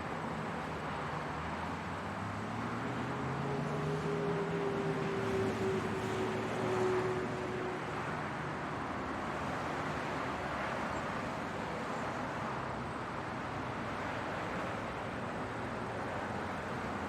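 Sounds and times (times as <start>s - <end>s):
car road noise: 0.0s - 17.0s.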